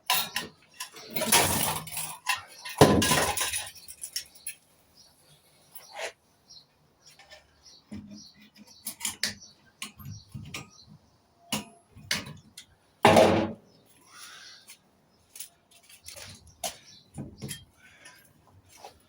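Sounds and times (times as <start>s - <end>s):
metal clatter: 0.0s - 4.6s.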